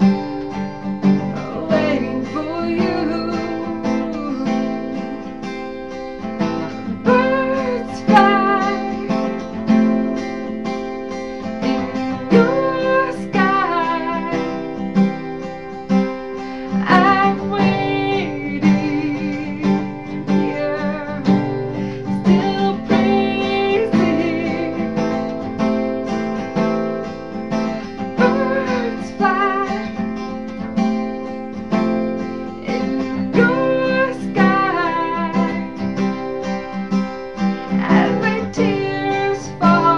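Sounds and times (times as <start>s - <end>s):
acoustic guitar strummed and picked: 0.0s - 39.9s
person singing a worship song: 1.3s - 5.2s, 7.0s - 9.3s, 11.9s - 14.5s, 16.8s - 25.1s, 28.2s - 30.0s, 32.6s - 35.8s, 37.8s - 39.9s.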